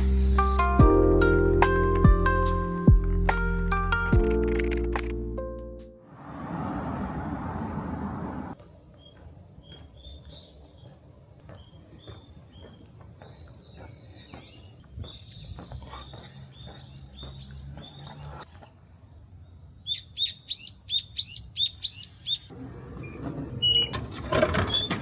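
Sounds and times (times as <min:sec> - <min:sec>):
rushing background noise: 0:06.0 - 0:08.6
small bird chirping: 0:09.0 - 0:18.4, 0:19.8 - 0:22.5.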